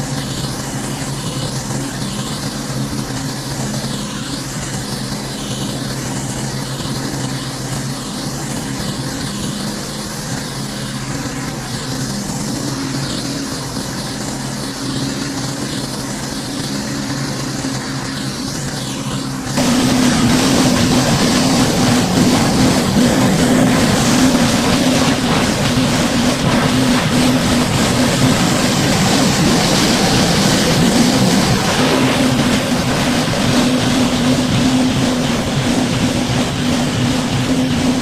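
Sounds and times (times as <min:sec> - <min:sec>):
pressure washer engine drone: 0:00.0 - 0:38.0.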